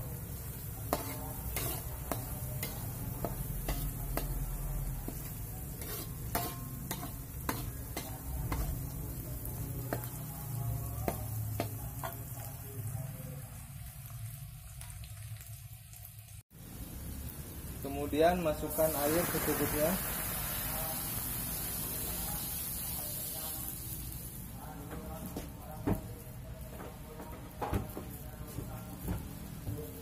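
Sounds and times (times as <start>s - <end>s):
paste sizzling in oil: 0.0s - 24.6s
metal spatula scraping a wok: 0.4s - 10.2s.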